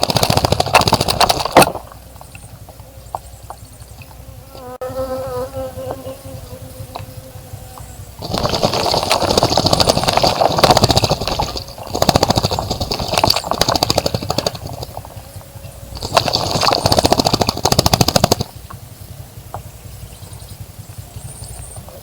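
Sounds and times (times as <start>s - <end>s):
bird splashing in water: 0.0s - 2.0s, 8.2s - 15.2s, 15.9s - 18.5s.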